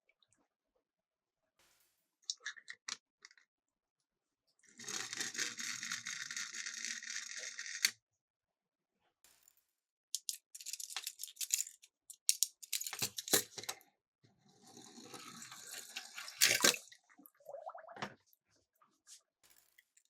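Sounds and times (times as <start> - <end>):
toy cars clattering on plastic track: 4.8 - 7.9, 10.2 - 13.8
water splashing: 15.3 - 18.2.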